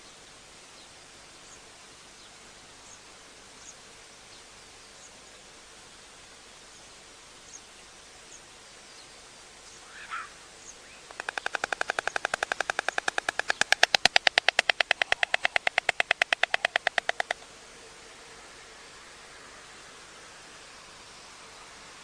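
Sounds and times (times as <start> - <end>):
stork bill-clattering: 11.1 - 17.4.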